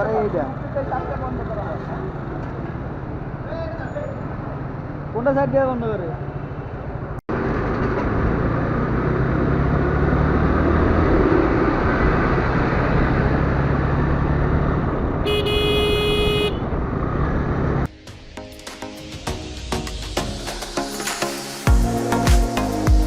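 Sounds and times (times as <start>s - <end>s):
road traffic noise: 0.0s - 23.0s
vehicle horn: 15.2s - 16.8s
percussive background music: 17.9s - 23.0s.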